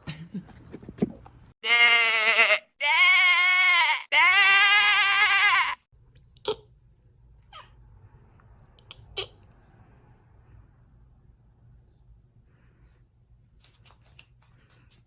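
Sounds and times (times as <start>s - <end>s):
quavering bleats: 1.6s - 5.8s.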